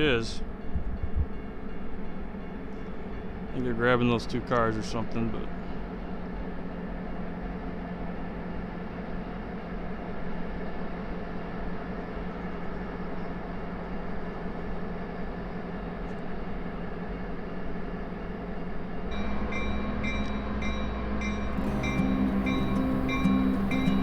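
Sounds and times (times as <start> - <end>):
diesel locomotives rumbling by: 0.0 - 24.0
background music: 19.4 - 24.0.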